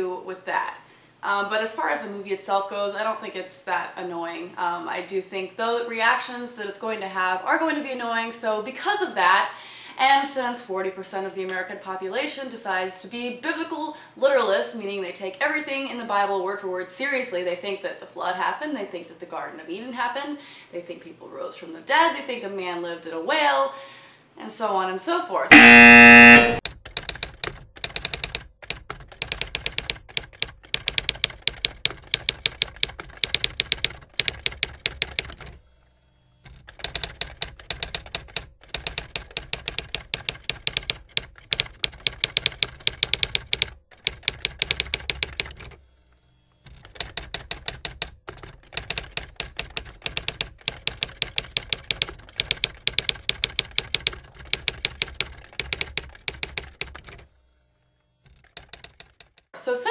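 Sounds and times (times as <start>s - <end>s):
keyboard typing clicks: 25.5s - 35.5s, 36.7s - 45.8s, 46.8s - 57.3s, 58.3s - 59.5s.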